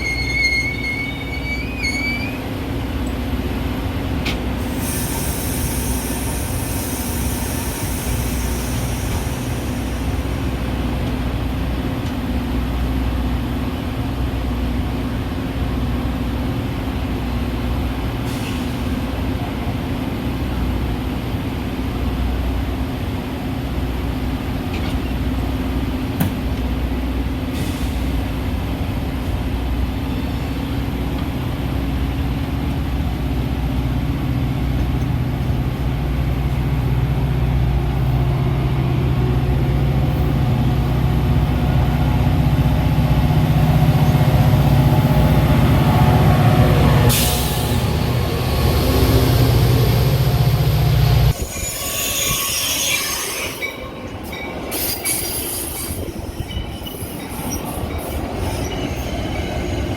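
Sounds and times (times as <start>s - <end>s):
train low rumble: 0.0s - 59.9s.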